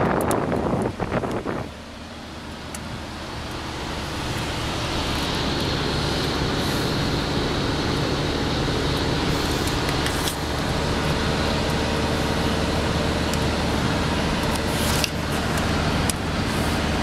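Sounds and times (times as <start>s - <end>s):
wind noise hiss: 0.0s - 2.3s
road noise in car cabin: 0.0s - 17.0s
loud air rush: 2.9s - 17.0s.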